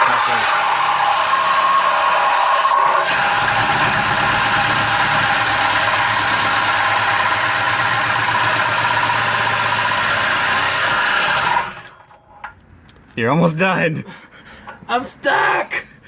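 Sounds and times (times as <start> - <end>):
power saw cutting metal pipe: 0.0 - 12.0.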